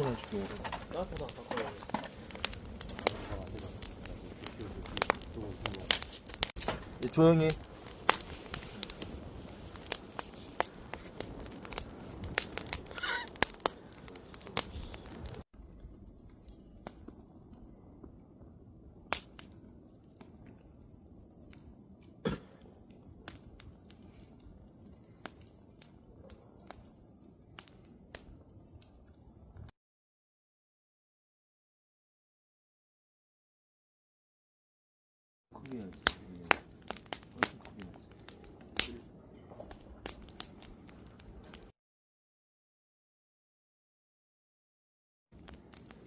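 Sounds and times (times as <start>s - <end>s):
campfire crackling and popping: 0.0s - 29.7s, 35.5s - 41.8s, 45.3s - 46.0s.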